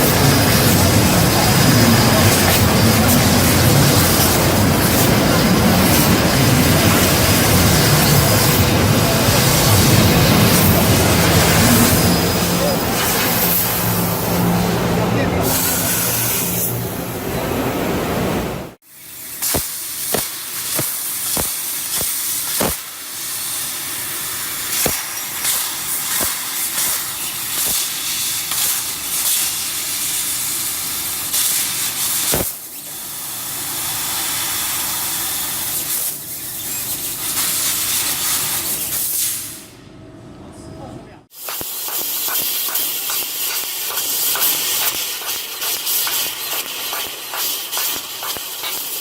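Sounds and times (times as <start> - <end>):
laser cutting machine hissing: 0.0 - 39.7, 41.3 - 49.0.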